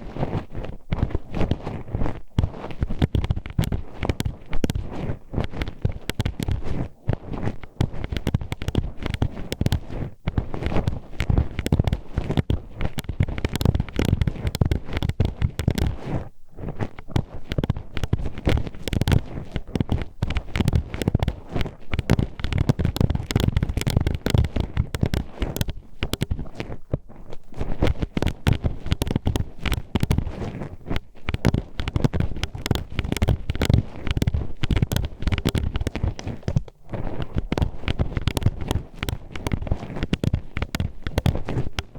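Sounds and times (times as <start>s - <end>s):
metal hairpins clacking on microphone: 2.4s - 6.8s, 7.5s - 16.0s, 16.9s - 26.8s, 27.4s - 41.9s.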